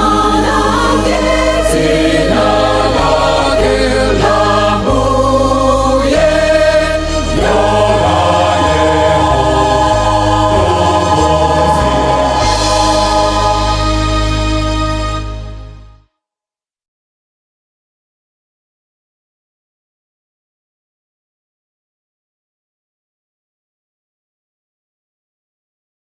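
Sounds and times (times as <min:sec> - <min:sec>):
gospel choir singing: 0:00.0 - 0:15.8
steady bass line: 0:00.0 - 0:16.0.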